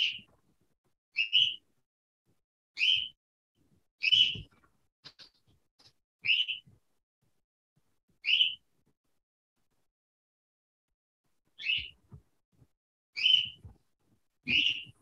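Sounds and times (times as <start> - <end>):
bird chirping: 0.0 - 0.4, 1.2 - 1.7, 2.8 - 3.2, 4.0 - 6.7, 8.2 - 8.7, 11.6 - 12.1, 13.2 - 13.7, 14.4 - 15.0.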